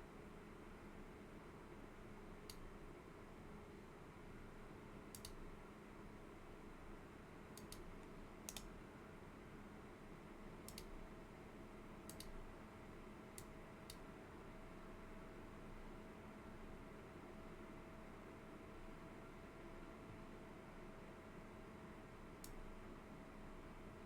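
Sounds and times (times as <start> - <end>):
low room hum: 0.0 - 24.0
computer mouse clicks: 5.1 - 5.4, 7.6 - 8.7, 10.6 - 10.9, 12.1 - 12.4, 22.4 - 22.6.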